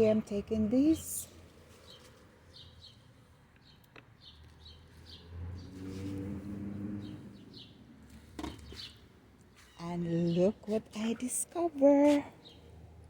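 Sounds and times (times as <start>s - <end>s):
small birds chirping: 0.5s - 12.8s.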